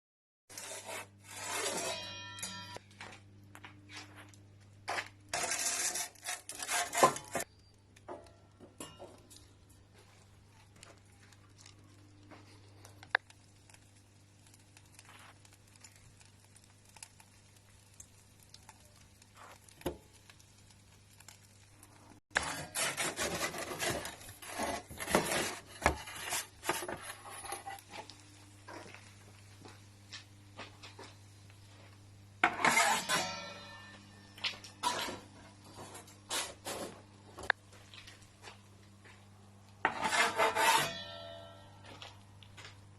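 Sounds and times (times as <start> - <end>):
metal utensils scraping and clattering: 0.5 - 2.8, 5.3 - 7.5, 22.3 - 28.1, 32.4 - 37.0, 39.8 - 41.7.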